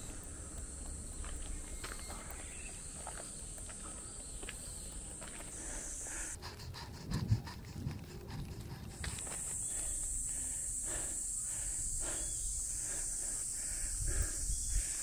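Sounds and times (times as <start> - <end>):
footsteps on leafy dirt trail: 0.0 - 6.4, 7.9 - 10.6
cicadas buzzing: 0.0 - 15.0.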